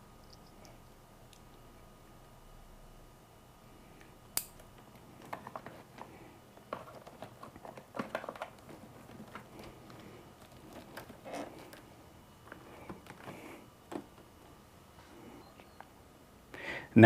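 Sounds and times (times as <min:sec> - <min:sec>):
hands rustling wiring: 0:04.6 - 0:15.9.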